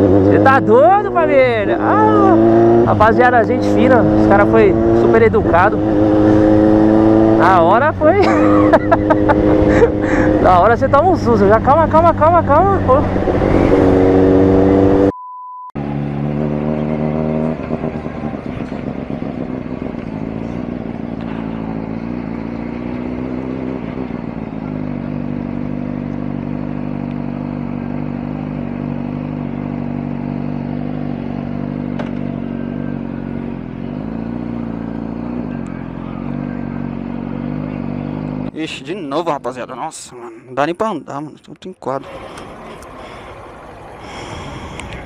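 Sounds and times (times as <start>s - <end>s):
motorcycle engine running: 0.0s - 15.1s, 15.8s - 39.4s, 42.0s - 45.0s.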